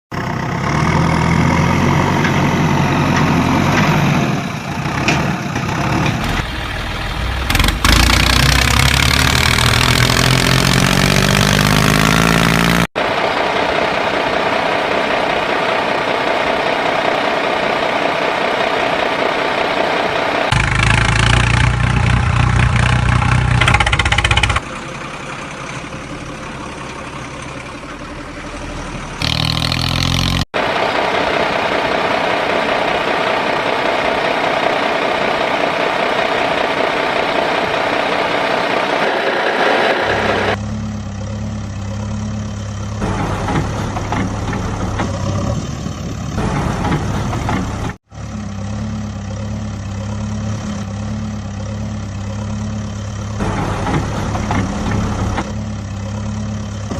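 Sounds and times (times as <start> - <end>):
heavy engine running: 0.1 - 56.9
low engine idle: 23.9 - 29.2.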